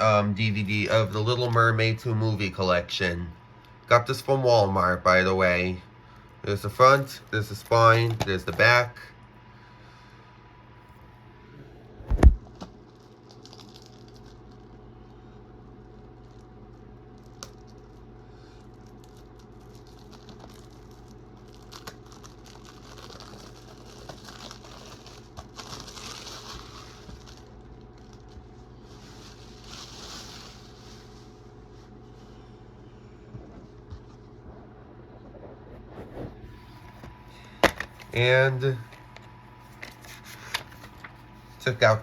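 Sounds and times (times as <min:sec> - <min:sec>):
plastic wrapping crinkling: 0:12.2 - 0:14.8, 0:17.1 - 0:32.3, 0:33.4 - 0:41.8.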